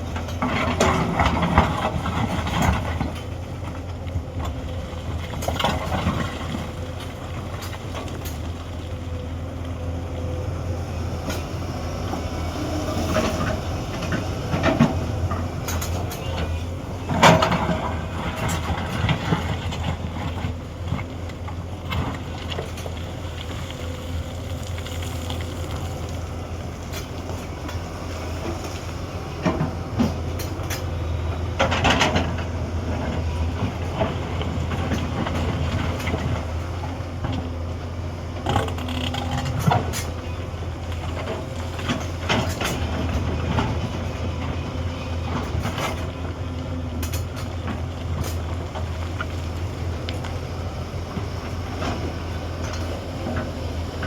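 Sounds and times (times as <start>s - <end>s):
excavator diesel engine droning: 0.0s - 54.0s.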